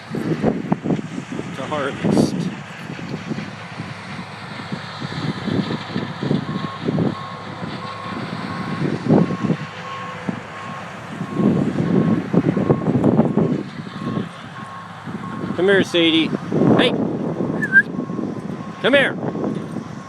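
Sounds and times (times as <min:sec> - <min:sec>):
low machinery rumble: 0:00.0 - 0:20.0
reversing alarm beeping: 0:06.4 - 0:16.2, 0:17.5 - 0:19.5.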